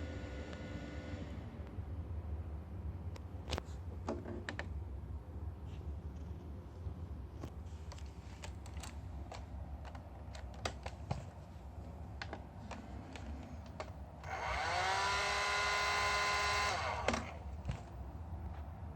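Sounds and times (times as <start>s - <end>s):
hair dryer whine and air rush: 14.2s - 17.4s.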